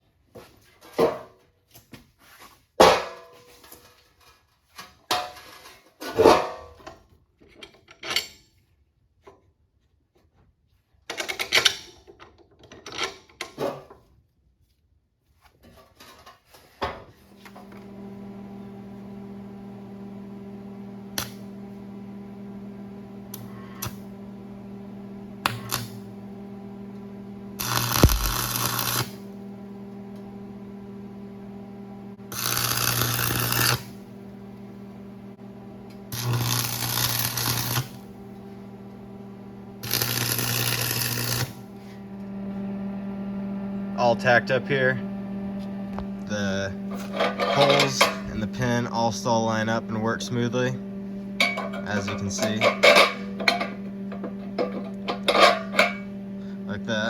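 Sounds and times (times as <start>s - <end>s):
steady mechanical hum: 17.3s - 57.0s
metal parts clanking: 46.9s - 48.3s, 51.4s - 56.1s.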